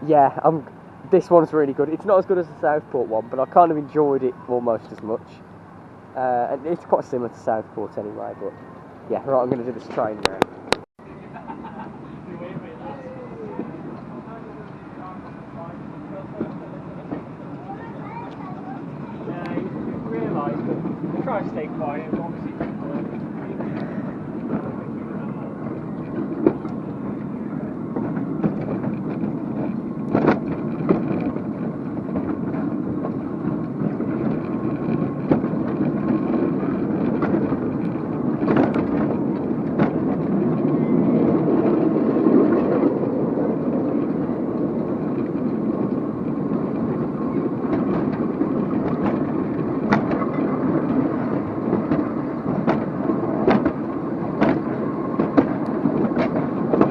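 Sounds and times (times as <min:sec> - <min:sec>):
ride train rumbling on track: 0:00.0 - 0:56.9
sharp clicks and knocks: 0:27.9 - 0:56.9.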